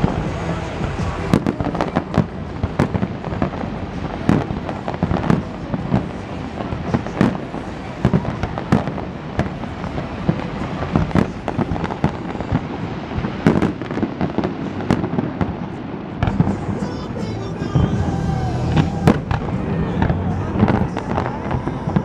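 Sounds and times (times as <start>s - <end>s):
fireworks bangs: 0.0s - 22.0s
low rumble of bursts: 16.3s - 22.0s.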